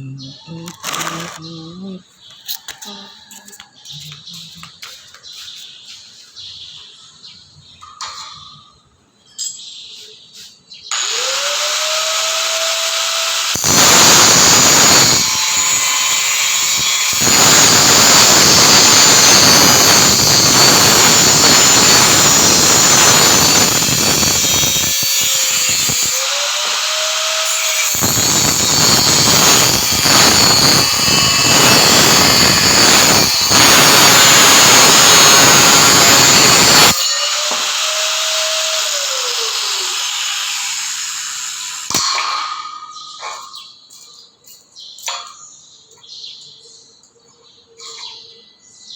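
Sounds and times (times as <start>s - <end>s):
angle grinder grinding metal: 0.6s - 1.6s, 10.9s - 43.7s.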